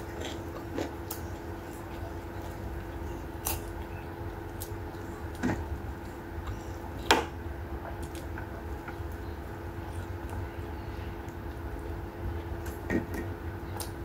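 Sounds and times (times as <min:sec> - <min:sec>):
person chewing food: 0:00.0 - 0:07.1
steady low hum: 0:00.0 - 0:14.0.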